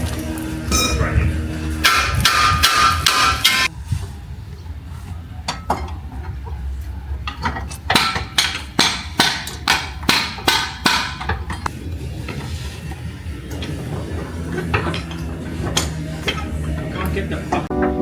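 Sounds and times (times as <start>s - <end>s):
steady low hum: 0.0s - 5.4s.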